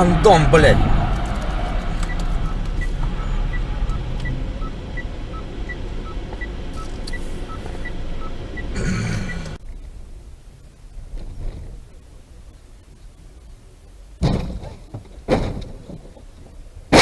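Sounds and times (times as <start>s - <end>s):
car engine and road rumble: 0.0s - 17.0s
two-tone electronic beeps: 2.1s - 9.5s.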